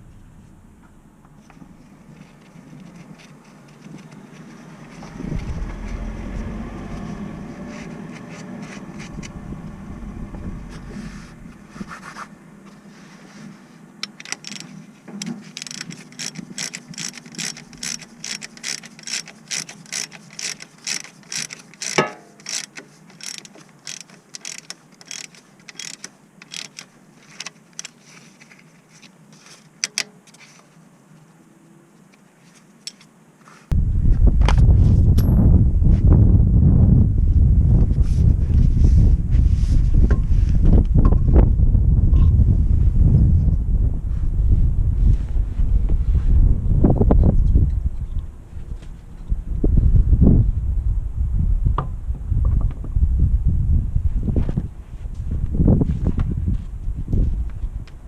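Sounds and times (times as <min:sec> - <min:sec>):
low rumble: 0:00.0 - 0:02.4, 0:04.6 - 0:12.2, 0:33.7 - 0:57.9
hand ratchet clicking: 0:14.0 - 0:14.7, 0:15.4 - 0:28.0.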